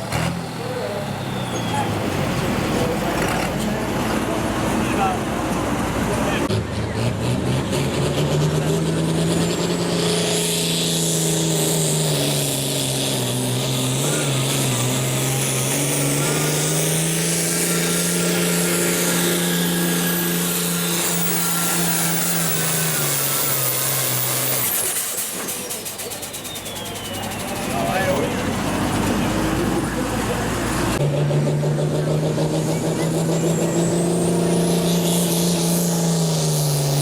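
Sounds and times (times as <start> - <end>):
diesel tractor engine under load: 0.0 - 37.0
high turbo whistle: 17.6 - 24.9.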